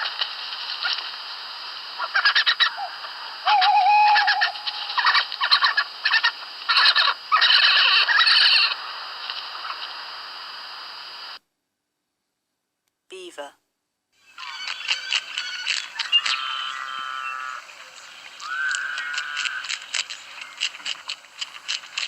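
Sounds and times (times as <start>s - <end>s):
badger squeals and cries: 14.4s - 17.6s, 18.4s - 19.8s.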